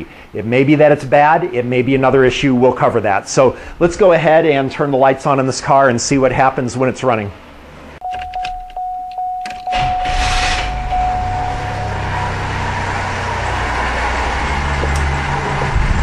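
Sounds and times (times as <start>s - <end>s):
car warning chime: 8.0s - 12.9s
car engine cranking and idling: 8.3s - 16.0s.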